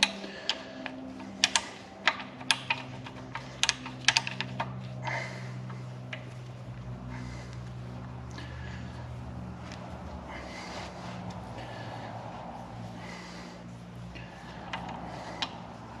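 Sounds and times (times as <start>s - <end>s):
metallic clicks of hand tools: 0.0s - 4.8s
low steady hum: 0.0s - 16.0s.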